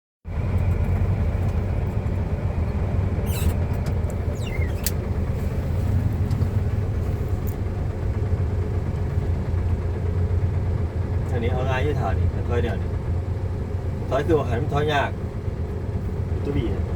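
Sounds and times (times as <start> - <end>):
diesel engine running: 0.2 - 16.9
short high squeaks: 3.2 - 5.0.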